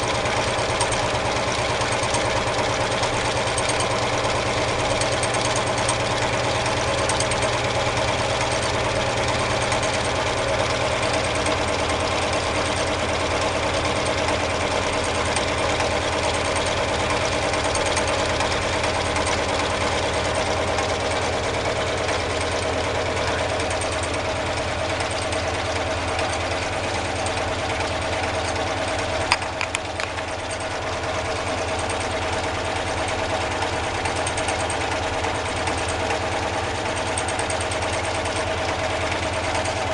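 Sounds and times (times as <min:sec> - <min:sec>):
stirling engine running: 0:00.0 - 0:39.9
sharp clicks: 0:29.2 - 0:30.8.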